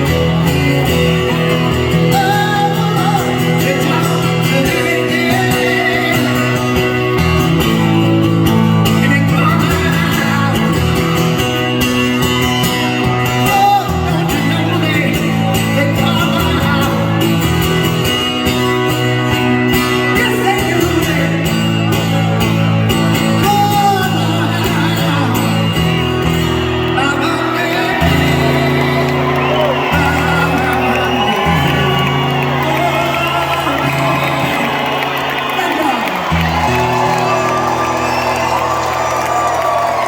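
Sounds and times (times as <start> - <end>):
person singing: 0.0 - 11.1, 26.8 - 38.4
guitars: 0.0 - 40.0
live rock band playing: 0.0 - 40.0.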